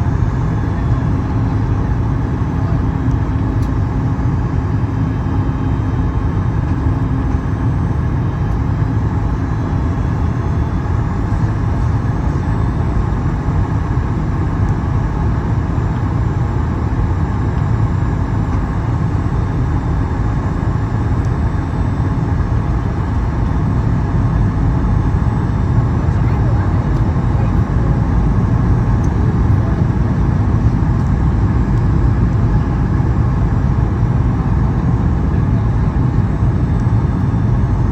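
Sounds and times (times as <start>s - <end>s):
airliner cabin roar: 0.0s - 37.9s.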